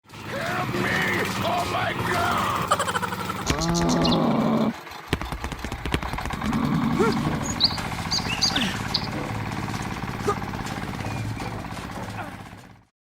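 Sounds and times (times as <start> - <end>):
large animal low call: 3.4 - 4.9, 6.3 - 9.4, 10.2 - 10.6
high bird chirps: 3.5 - 4.4, 7.1 - 9.2, 11.0 - 11.5.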